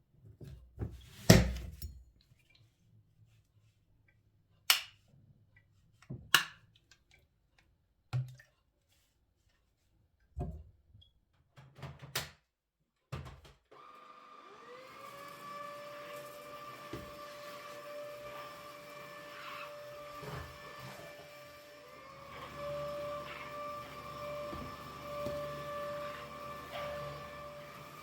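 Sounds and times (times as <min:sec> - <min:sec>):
vacuum cleaner motor whine: 0:13.7 - 0:28.0.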